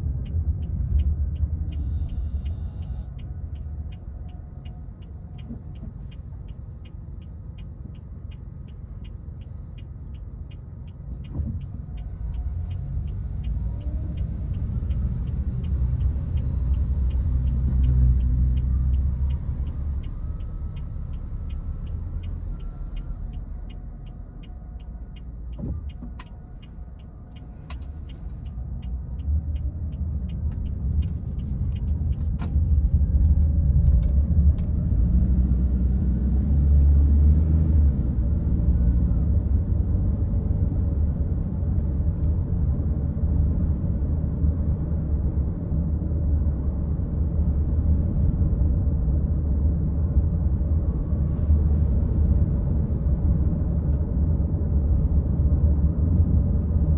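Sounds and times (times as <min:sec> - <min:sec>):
car engine and road noise: 0:00.0 - 0:56.9.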